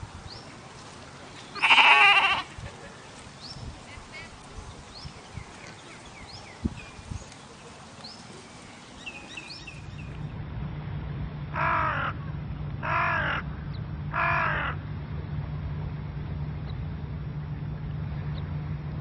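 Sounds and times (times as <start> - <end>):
low background hum: 0.1 - 19.0
small birds chirping: 0.2 - 10.3
crow cawing: 1.6 - 2.5, 11.6 - 12.2, 12.8 - 13.4, 14.1 - 14.8.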